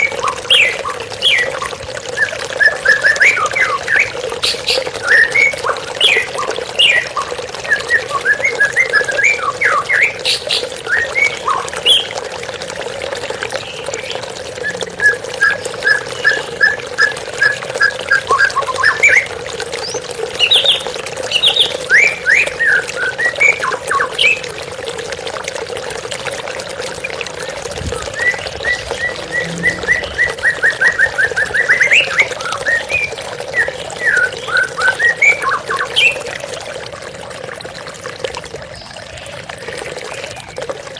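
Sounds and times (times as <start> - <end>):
flowing water: 0.0 - 40.9
bird singing: 2.2 - 12.1, 28.0 - 36.2.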